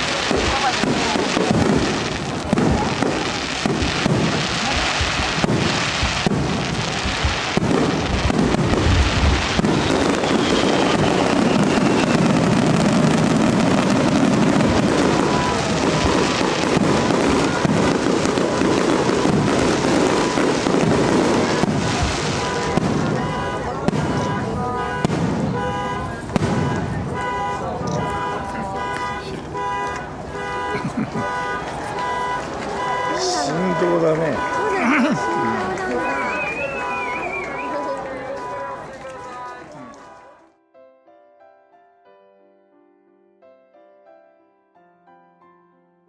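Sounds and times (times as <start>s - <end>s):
firework shells bursting: 0.0s - 23.2s.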